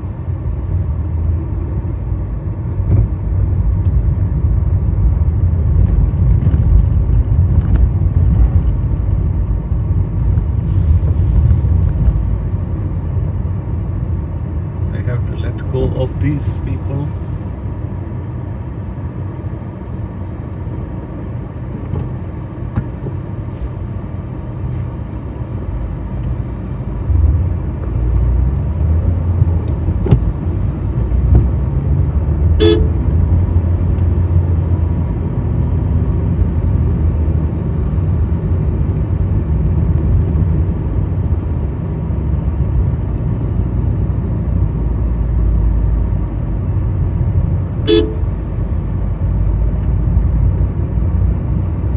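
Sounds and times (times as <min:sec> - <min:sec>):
car engine and road rumble: 0:00.0 - 0:51.9
car horn toot: 0:32.6 - 0:33.0, 0:47.8 - 0:48.4.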